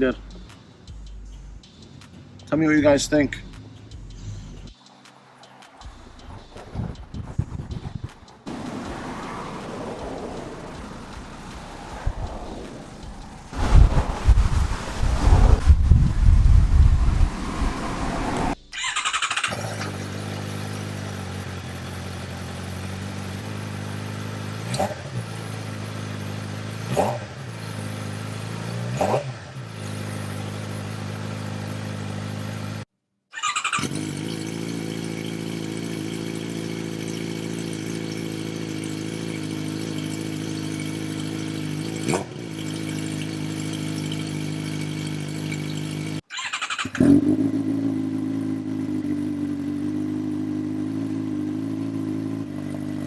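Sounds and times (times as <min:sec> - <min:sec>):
motorcycle engine idling: 0:18.9 - 0:28.9, 0:33.5 - 0:46.2, 0:47.0 - 0:53.0.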